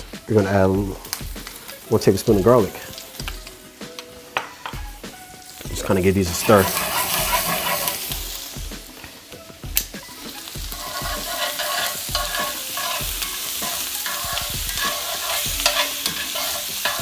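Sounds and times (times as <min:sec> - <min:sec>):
potatoes sizzling in butter: 0:00.0 - 0:17.0
stirring in a pan: 0:00.0 - 0:17.0.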